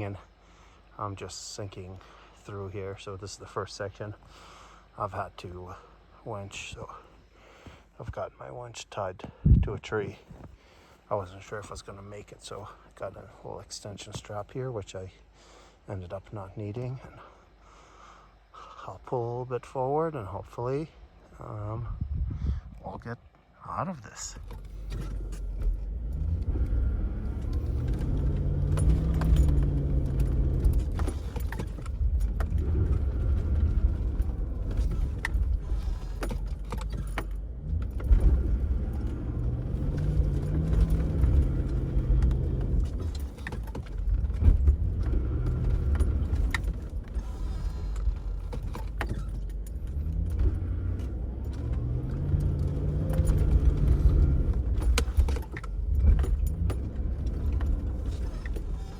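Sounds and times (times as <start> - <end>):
vehicle engine straining in snow: 24.1 - 58.9
clicks and clanks: 27.2 - 58.9.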